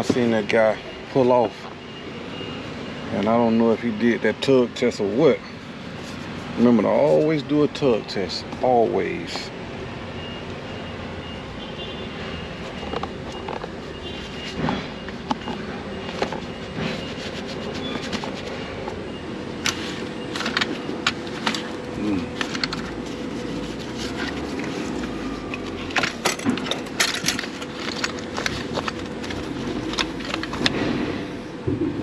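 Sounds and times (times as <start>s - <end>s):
equipment clicks and knocks: 25.5s - 31.0s.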